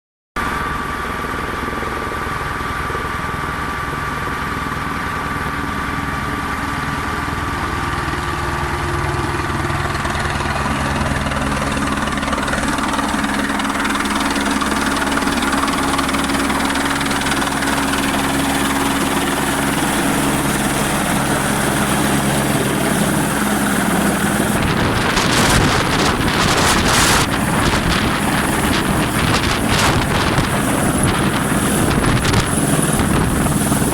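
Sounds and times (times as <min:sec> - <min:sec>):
helicopter engine and rotor hum: 0:00.4 - 0:33.9
rushing noise with surges: 0:10.1 - 0:33.9.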